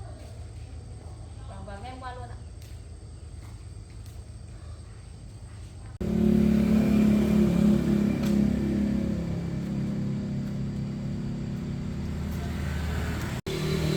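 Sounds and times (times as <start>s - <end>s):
truck engine running: 6.0s - 13.9s.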